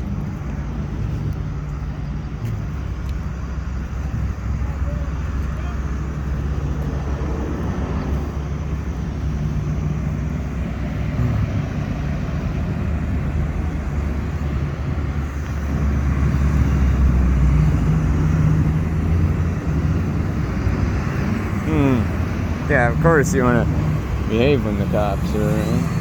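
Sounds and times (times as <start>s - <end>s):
car and truck engines droning: 0.0s - 26.0s.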